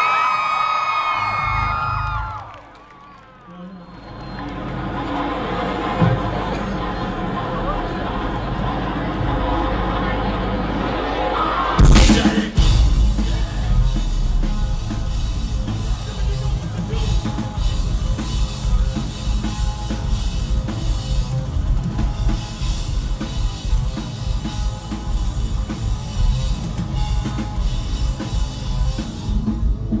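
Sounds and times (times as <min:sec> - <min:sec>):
live metal band music: 0:04.5 - 0:30.0
fast drumming on drum kit: 0:11.8 - 0:30.0.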